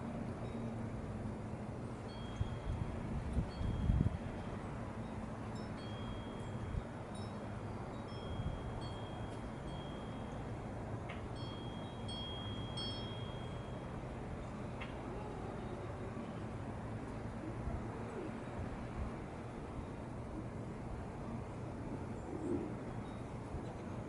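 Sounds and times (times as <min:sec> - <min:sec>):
high ringing chimes: 0:02.0 - 0:04.2, 0:05.0 - 0:14.6.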